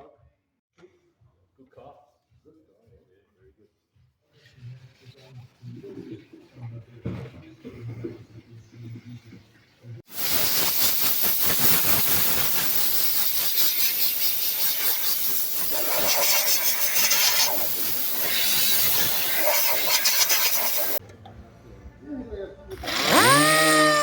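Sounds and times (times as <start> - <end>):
compressed air hissing: 10.1 - 21.0.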